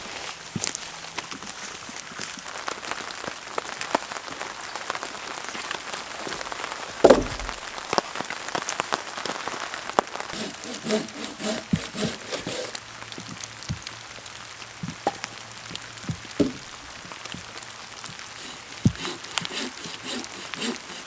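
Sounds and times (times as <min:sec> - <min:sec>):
raindrops ticking on a surface: 0:00.0 - 0:10.4, 0:12.8 - 0:19.5
rain falling: 0:00.0 - 0:21.0
loud thump: 0:16.4 - 0:16.7.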